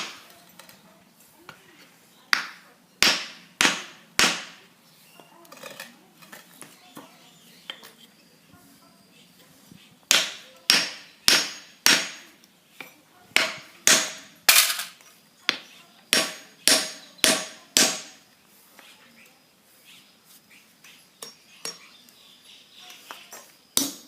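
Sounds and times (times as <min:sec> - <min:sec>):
hammer striking wood: 0:02.3 - 0:04.6, 0:10.1 - 0:12.3, 0:13.4 - 0:14.3, 0:15.5 - 0:18.2.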